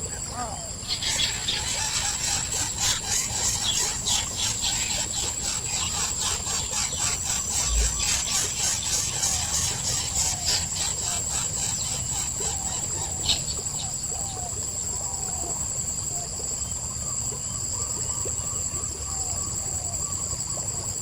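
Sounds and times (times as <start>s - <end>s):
high insect buzz: 0.1s - 14.4s
nestlings squeaking chirps: 0.8s - 12.2s.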